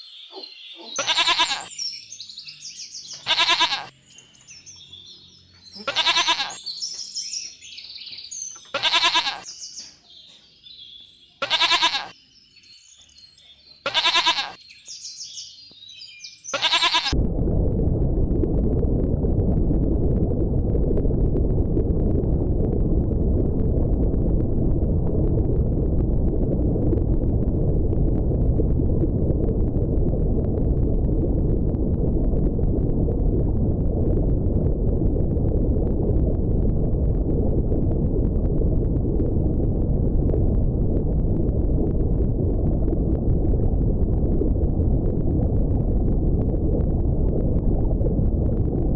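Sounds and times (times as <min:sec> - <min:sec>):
goat bleating: 0:00.8 - 0:01.7, 0:03.3 - 0:03.9, 0:05.8 - 0:06.6, 0:08.7 - 0:09.4, 0:11.4 - 0:12.1, 0:13.8 - 0:14.6, 0:16.5 - 0:17.2
low rushing noise: 0:17.2 - 0:48.9.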